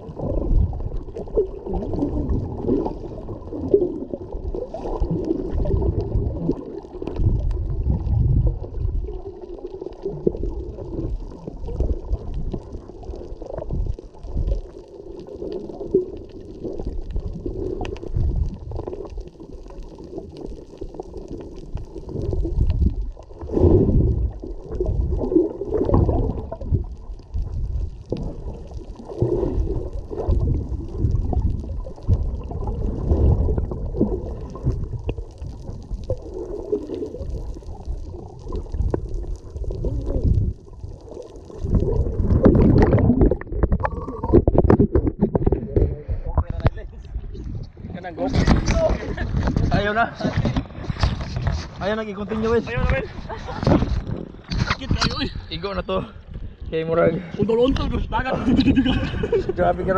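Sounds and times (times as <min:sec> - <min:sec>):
muffled water and wind rumble: 0:00.0 - 0:09.4, 0:21.7 - 0:59.9.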